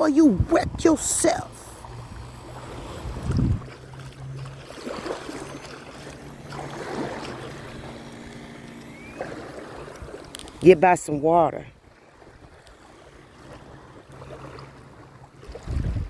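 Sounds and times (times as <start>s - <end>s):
wind on microphone: 0.0s - 4.1s, 15.4s - 16.0s
waves washing on shore: 0.0s - 11.2s
low hum: 0.0s - 11.8s.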